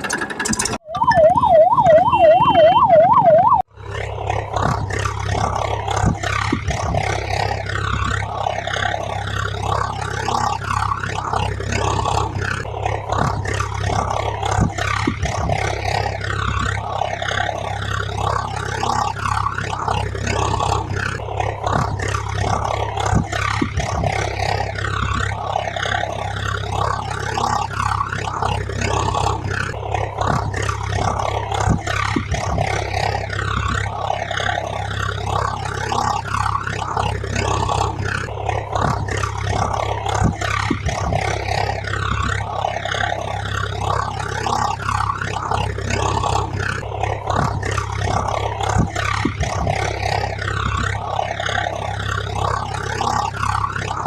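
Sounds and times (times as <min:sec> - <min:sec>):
constant low hum: 0:00.0 - 0:54.0
yelp siren: 0:00.8 - 0:03.7.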